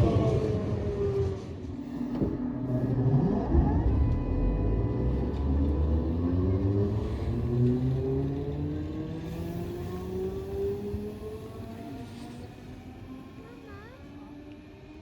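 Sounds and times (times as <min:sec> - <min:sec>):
low rumble: 0:01.4 - 0:11.8
electric train motors whining: 0:02.0 - 0:13.8.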